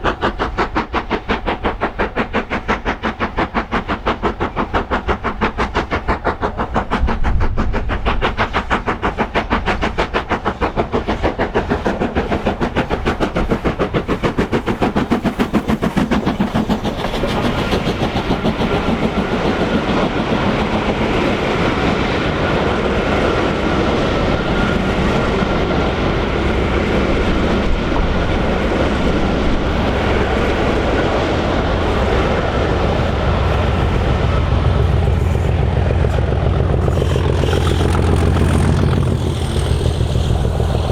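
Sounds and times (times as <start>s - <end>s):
steam locomotive exhaust beats: 0.0s - 40.9s
train wheels rumbling and clacking: 0.0s - 40.9s
deep engine drone: 20.6s - 40.9s.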